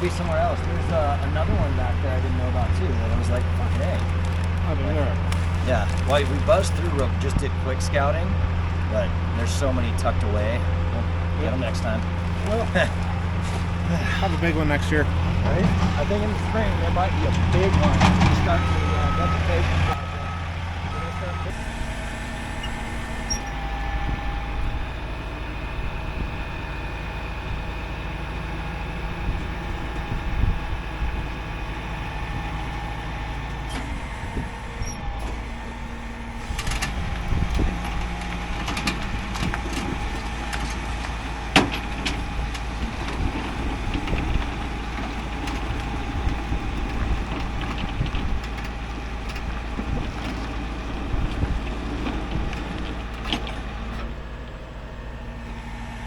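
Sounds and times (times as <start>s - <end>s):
tow truck engine running: 0.0s - 56.0s
knocks and rattles: 14.5s - 18.7s.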